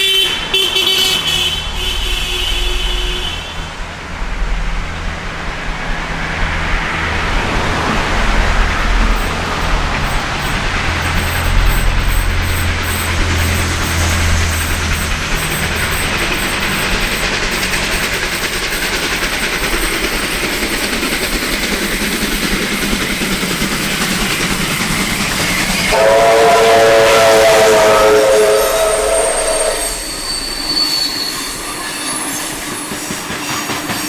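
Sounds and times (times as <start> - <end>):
train engine rumble: 0.0 - 34.0
train running noise: 0.0 - 34.0
train horn chord: 25.9 - 30.3.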